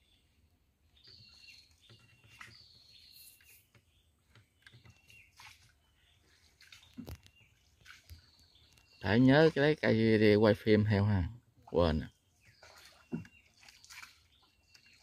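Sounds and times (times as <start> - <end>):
faint whistled bird calls: 1.0 - 3.9.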